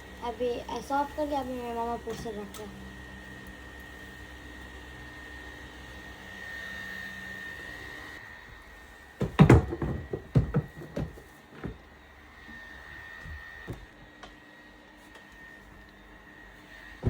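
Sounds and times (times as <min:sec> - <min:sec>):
electric fans humming: 0:00.0 - 0:17.0
objects knocking and clattering: 0:09.2 - 0:11.8.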